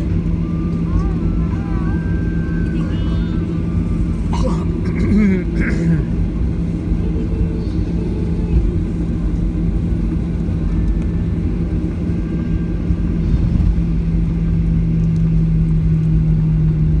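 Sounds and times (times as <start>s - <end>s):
aircraft cabin engine rumble: 0.0s - 17.0s.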